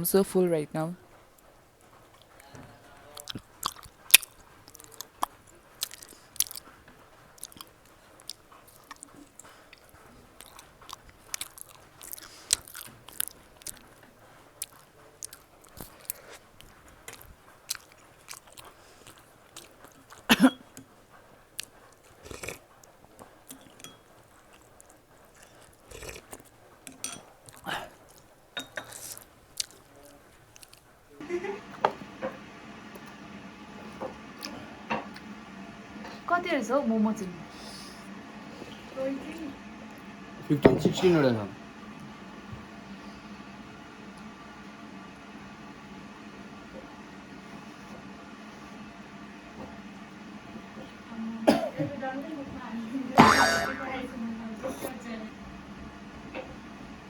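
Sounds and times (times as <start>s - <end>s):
person chewing with wet smacks: 2.1s - 30.9s.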